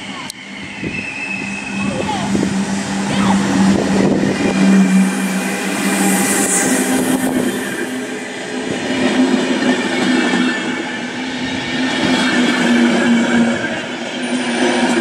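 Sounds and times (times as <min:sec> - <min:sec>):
steady low tone: 0:00.0 - 0:08.3
train wheels rolling on rails: 0:00.0 - 0:15.0.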